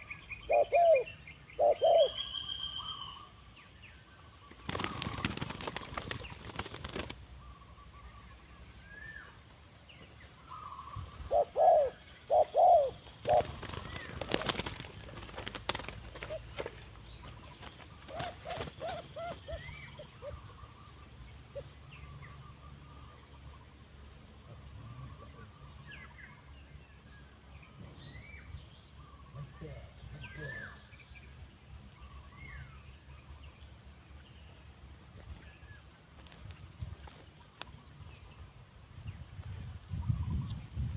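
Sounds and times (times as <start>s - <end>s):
small birds chirping: 0.0s - 40.9s
dove cooing: 0.5s - 2.2s, 11.2s - 14.8s, 15.5s - 16.8s, 18.0s - 20.5s.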